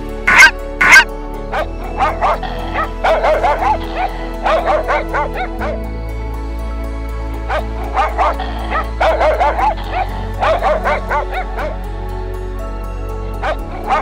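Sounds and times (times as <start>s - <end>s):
background music with low drone: 0.0s - 14.0s
dog yipping and whining: 0.3s - 1.1s.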